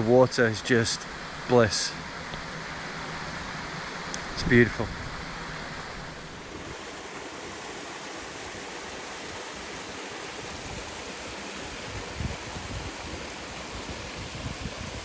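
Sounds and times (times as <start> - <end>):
waterfall rushing: 5.9 - 15.0.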